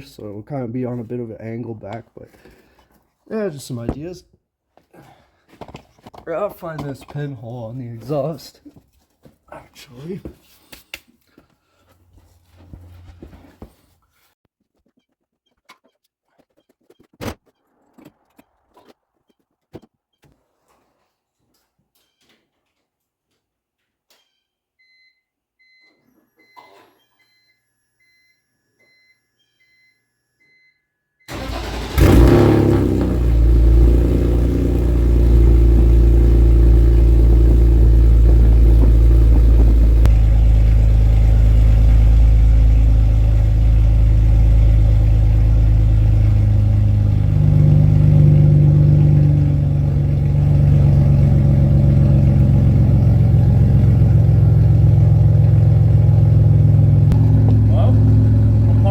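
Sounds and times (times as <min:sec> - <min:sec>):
car engine starting and idling: 0:31.3 - 0:58.9.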